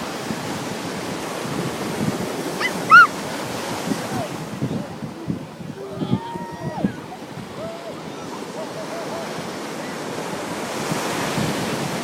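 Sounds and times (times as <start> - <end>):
ocean waves washing on beach: 0.0 - 12.0
wind buffeting microphone: 0.0 - 12.0
short high-pitched cries: 2.6 - 3.1.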